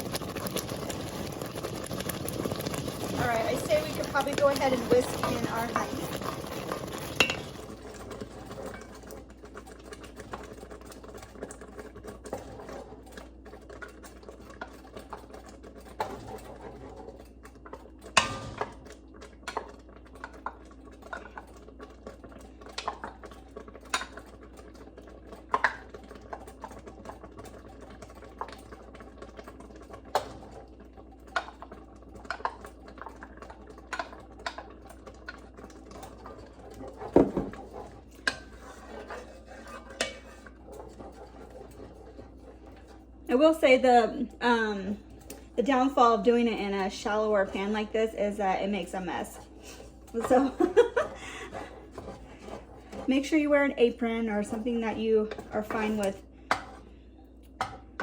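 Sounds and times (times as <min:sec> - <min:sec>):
utensil scraping a pan: 0:00.0 - 0:09.1, 0:36.0 - 0:43.8, 0:48.7 - 0:57.0
jam boiling: 0:00.0 - 0:58.0.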